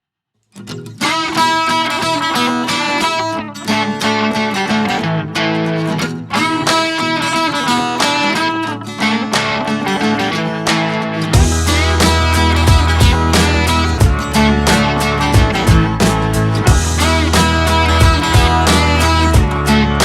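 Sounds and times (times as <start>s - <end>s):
strummed guitar chords: 0.6s - 20.0s.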